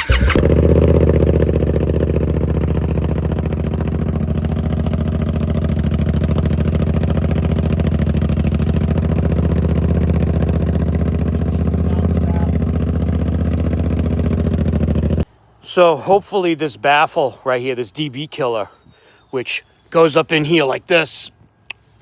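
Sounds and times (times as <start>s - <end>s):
motorcycle engine idling: 0.0s - 15.5s.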